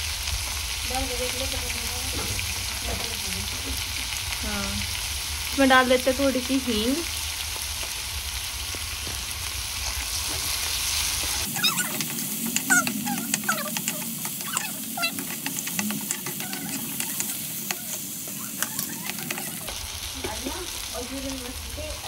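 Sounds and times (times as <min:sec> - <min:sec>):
masala sizzling in a pan: 0:00.0 - 0:22.0
spoon clicking against pan: 0:11.9 - 0:19.7.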